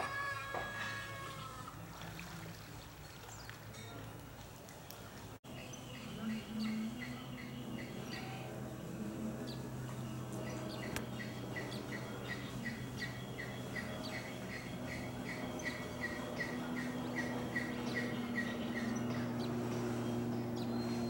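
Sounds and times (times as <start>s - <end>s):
steady low hum: 5.4s - 21.0s.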